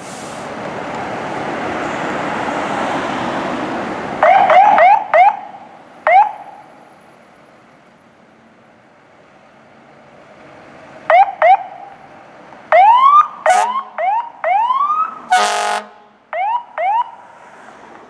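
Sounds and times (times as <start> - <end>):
low traffic hum: 0.0 - 18.0
air horn blast: 13.4 - 13.9, 15.3 - 16.2.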